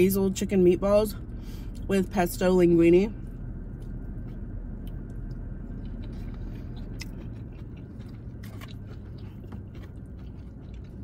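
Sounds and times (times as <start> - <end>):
person chewing salad: 3.2 - 11.0.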